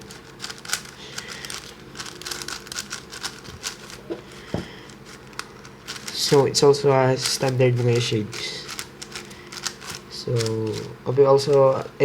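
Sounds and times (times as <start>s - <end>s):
plastic puzzle cube clicking: 0.4s - 4.0s, 8.7s - 10.9s.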